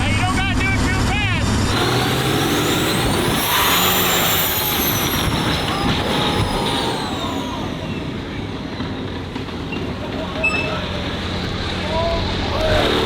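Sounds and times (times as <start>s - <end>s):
engine accelerating hard: 0.0s - 13.0s
turbo whistle: 10.4s - 11.1s.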